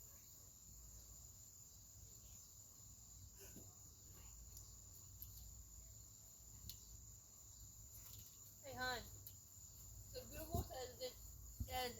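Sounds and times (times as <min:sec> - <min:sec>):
faint ticks: 0:06.6 - 0:06.9.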